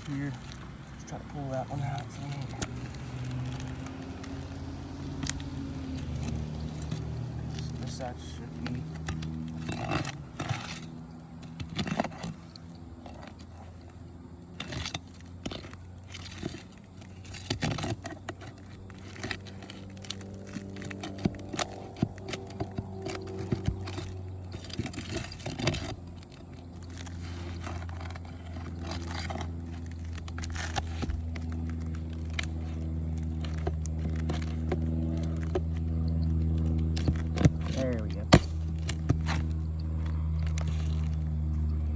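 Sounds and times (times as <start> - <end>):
engine hum: 0.0 - 41.9
tool prying nails from shingles: 36.4 - 39.6.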